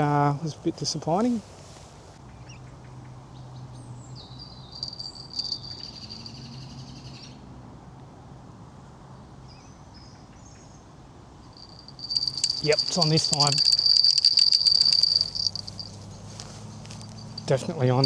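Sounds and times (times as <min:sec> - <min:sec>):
high rapid chirping: 0:11.6 - 0:16.0.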